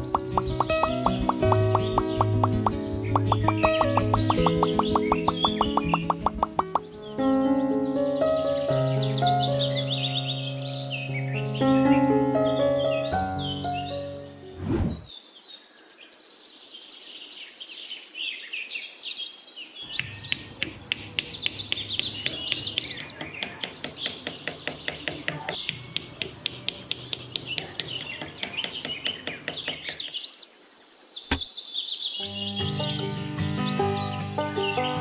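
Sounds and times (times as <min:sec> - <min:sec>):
rapid even clicking: 0:00.0 - 0:06.9, 0:20.0 - 0:30.2
birds chirping: 0:00.0 - 0:35.0.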